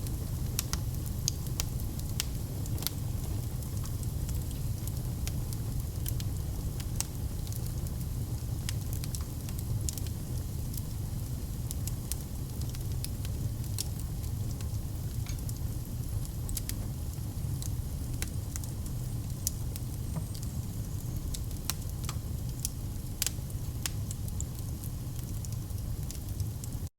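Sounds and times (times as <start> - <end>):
wood fire rumbling: 0.0 - 26.9
logs crackling and popping: 0.1 - 3.0.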